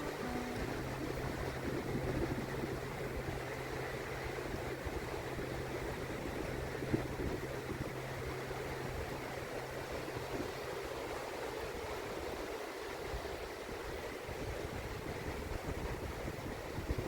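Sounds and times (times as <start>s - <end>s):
surf washing onto beach: 0.0s - 17.0s
wind buffeting microphone: 0.0s - 17.0s.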